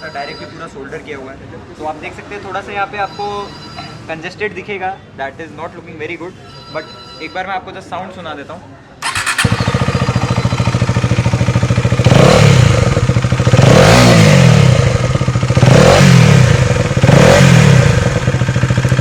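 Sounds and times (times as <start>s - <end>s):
motorcycle engine idling: 9.0s - 19.0s
motorcycle engine revving: 9.0s - 19.0s.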